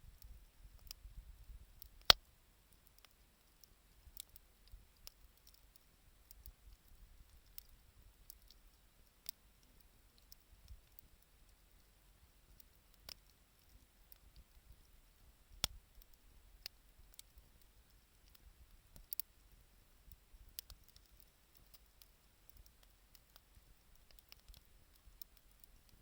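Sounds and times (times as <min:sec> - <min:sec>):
campfire crackling: 0:00.1 - 0:26.0.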